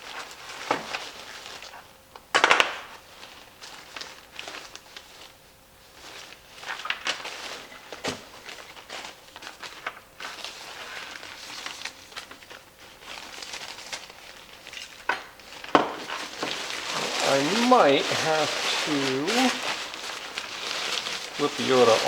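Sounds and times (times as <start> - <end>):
nylon fabric rustling: 3.0 - 22.0.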